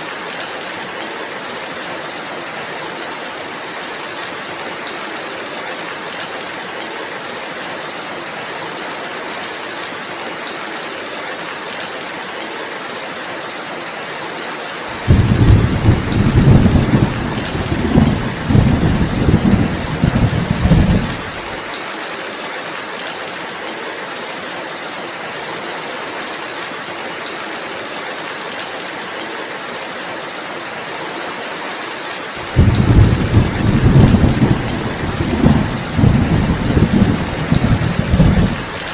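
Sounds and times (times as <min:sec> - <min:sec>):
steady rainfall: 0:00.0 - 0:38.9
thunderclap: 0:15.0 - 0:21.5, 0:32.4 - 0:38.9
rolling thunder: 0:15.0 - 0:21.6, 0:32.4 - 0:38.9.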